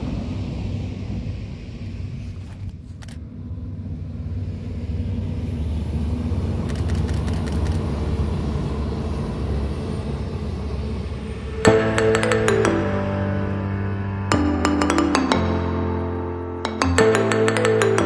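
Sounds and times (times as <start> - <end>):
train passing at speed: 0.0 - 17.8
train clicks: 2.3 - 3.2, 6.6 - 7.9
music: 11.3 - 18.0.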